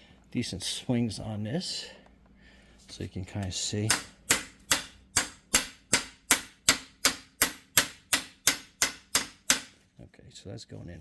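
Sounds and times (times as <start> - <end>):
hammer striking metal: 3.9 - 9.8.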